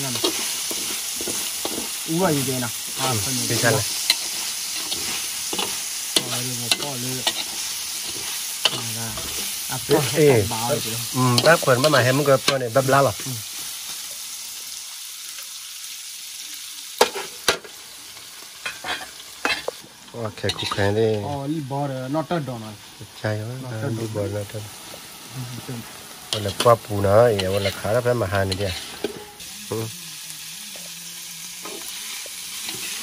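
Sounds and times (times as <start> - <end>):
metal spatula scraping a wok: 0.0 - 12.8, 18.6 - 19.8, 20.4 - 21.3, 26.2 - 29.4, 31.6 - 33.0
meat sizzling in a wok: 0.0 - 33.0.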